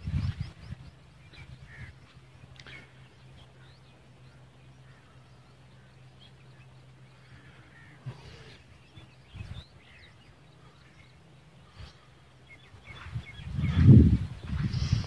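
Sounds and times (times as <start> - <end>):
birds calling faintly: 0.0 - 15.0
steady low hum: 0.0 - 15.0.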